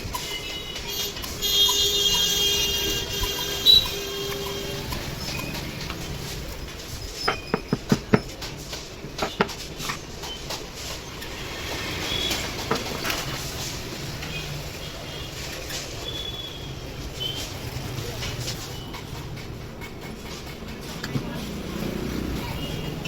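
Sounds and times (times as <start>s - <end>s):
sharp metallic taps: 7.2s - 8.5s.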